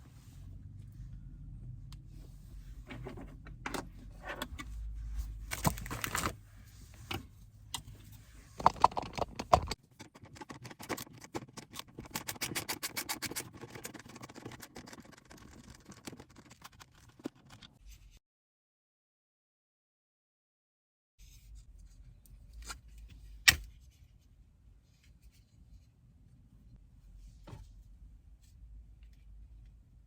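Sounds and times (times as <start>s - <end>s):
clicks and rattles of hard parts: 8.6s - 17.5s.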